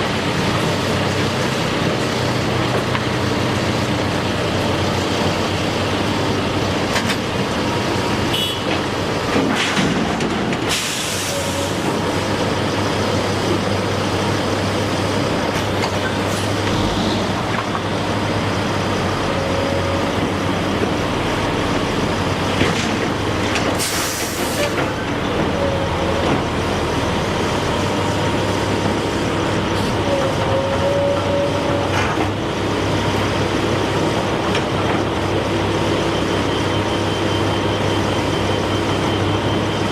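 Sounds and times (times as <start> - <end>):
heavy machinery noise: 0.0 - 39.9
short hissing blasts: 23.8 - 24.7.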